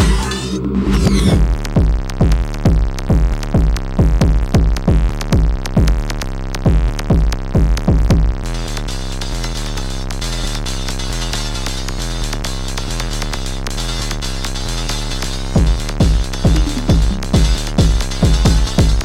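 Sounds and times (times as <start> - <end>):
drum machine kick drum beat: 1.4 - 8.4, 15.4 - 19.0
repeating low synth pattern: 15.6 - 19.0.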